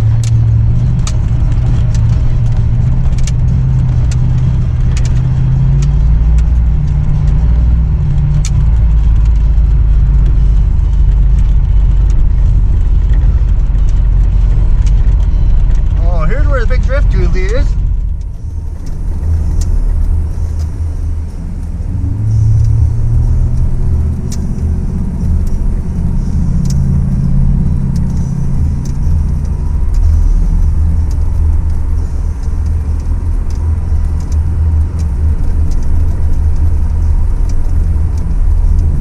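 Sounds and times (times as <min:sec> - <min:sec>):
truck engine rumble: 0:00.0 - 0:39.0.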